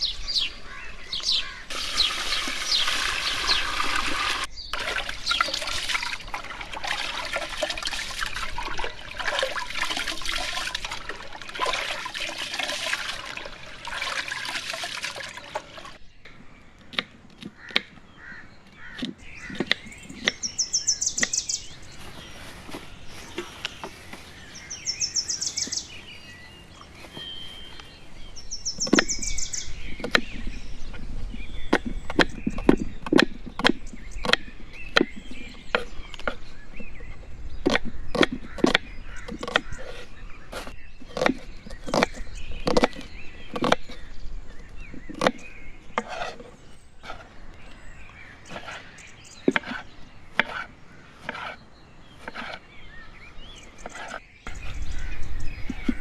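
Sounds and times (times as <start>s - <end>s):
birds chirping: 0.0s - 56.0s
chopping on a wooden board: 50.4s - 50.7s.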